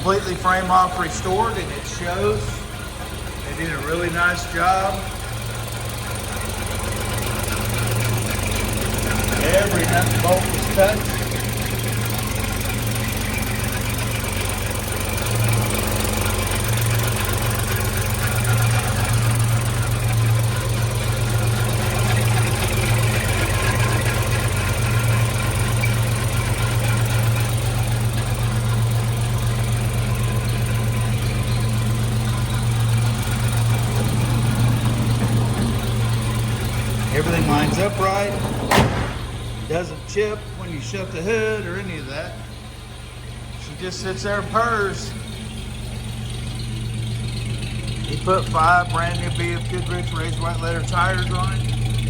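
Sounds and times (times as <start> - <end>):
engine idling: 0.0 - 52.0.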